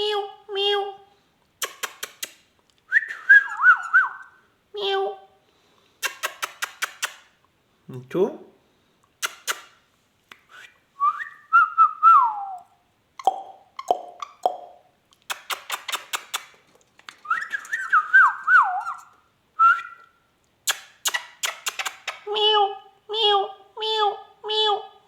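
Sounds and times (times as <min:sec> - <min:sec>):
parrot warbling whistles: 0:17.3 - 0:20.0.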